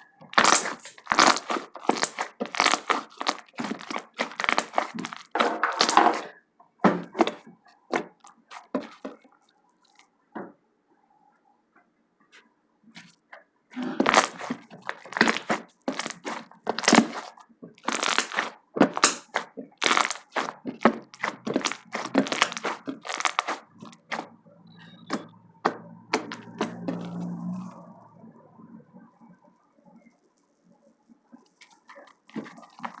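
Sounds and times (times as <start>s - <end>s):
slime crackling and popping: 0.2s - 6.2s, 13.9s - 24.3s, 25.1s - 27.2s, 31.6s - 33.0s.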